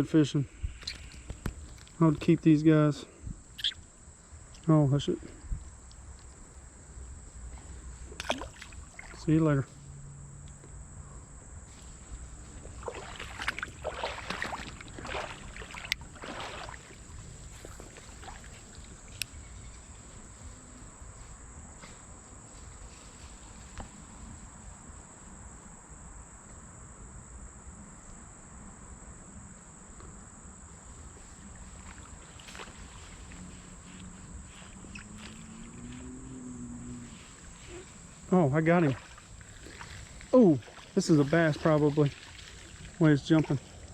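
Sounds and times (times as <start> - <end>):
insect drone: 0.0 - 43.9
splashing and rustling: 0.7 - 2.2, 5.3 - 9.4, 11.7 - 20.7, 30.8 - 43.9
water rushing in creek: 7.9 - 9.6, 11.7 - 19.3, 31.0 - 36.2, 37.0 - 43.9.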